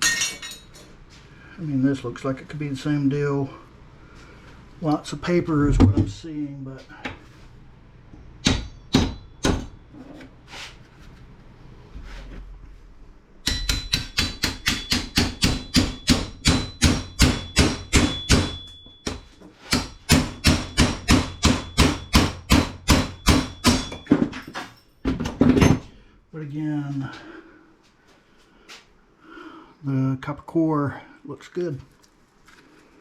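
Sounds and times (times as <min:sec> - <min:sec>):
hand tool striking metal: 0:08.4 - 0:09.8, 0:13.4 - 0:24.3.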